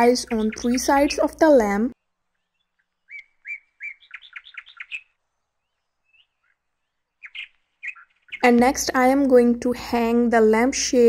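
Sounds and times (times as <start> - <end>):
small bird chirping: 0.0 - 8.5.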